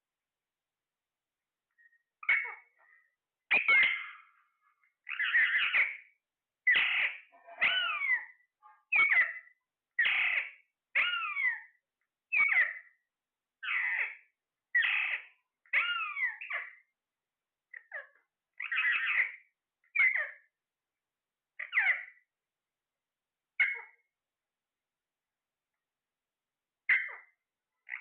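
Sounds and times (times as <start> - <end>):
parrot calling: 2.2 - 4.4, 5.0 - 6.1, 6.7 - 12.9, 13.6 - 16.8, 17.7 - 20.5, 21.6 - 22.2, 23.6 - 24.0, 26.9 - 28.0.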